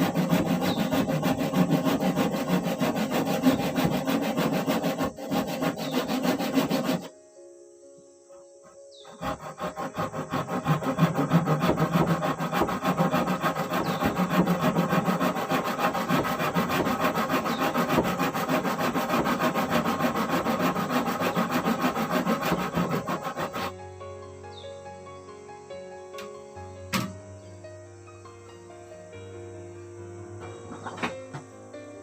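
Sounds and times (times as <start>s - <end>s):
wood being sawn: 0.0s - 7.1s, 8.6s - 23.8s.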